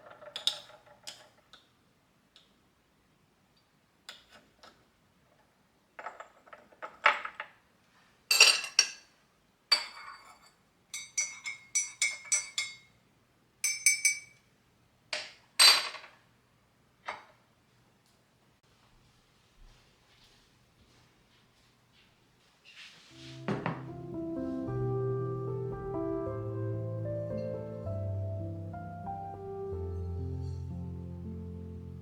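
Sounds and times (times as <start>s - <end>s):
dishes and cutlery clinking: 8.3s - 9.1s, 9.7s - 12.9s, 13.6s - 14.4s, 23.2s - 24.2s.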